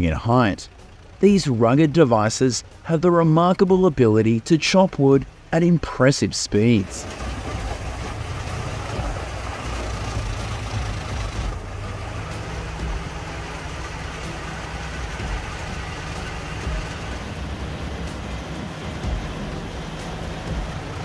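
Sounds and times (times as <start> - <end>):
wood chipper running: 0.6 - 2.0, 6.7 - 21.0.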